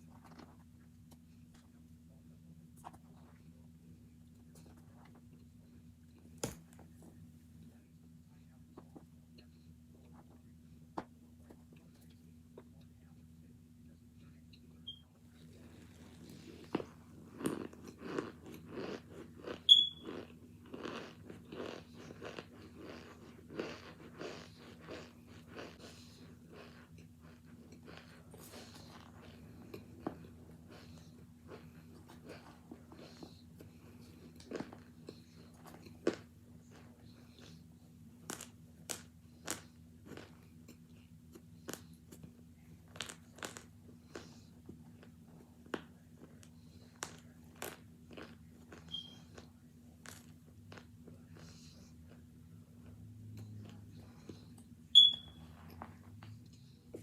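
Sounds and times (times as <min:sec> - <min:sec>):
crunchy chewing: 0:15.4 - 0:57.0.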